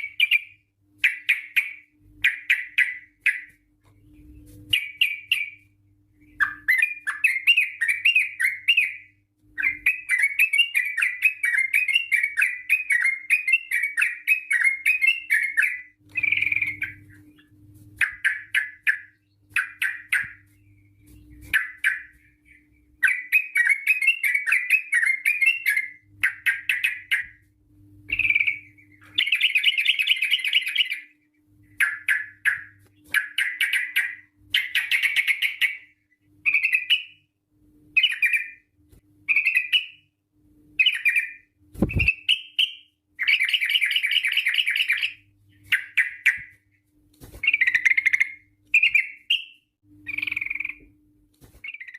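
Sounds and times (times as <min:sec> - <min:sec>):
faint low hum: 0:00.0 - 0:51.9
bird singing bubbling chirps: 0:04.2 - 0:27.4, 0:28.1 - 0:31.1, 0:47.5 - 0:50.9.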